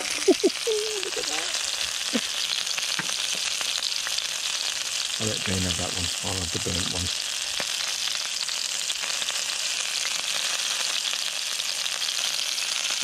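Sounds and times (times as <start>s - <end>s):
meat sizzling on a griddle pan: 0.0s - 13.0s.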